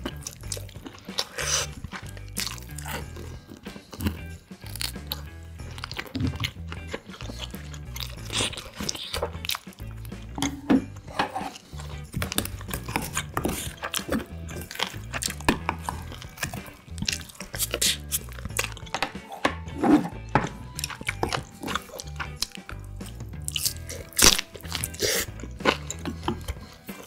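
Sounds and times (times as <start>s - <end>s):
chewing and crunching: 0.0s - 27.0s
low background music: 0.0s - 27.0s
mouth clicks: 11.5s - 19.3s, 20.5s - 27.0s.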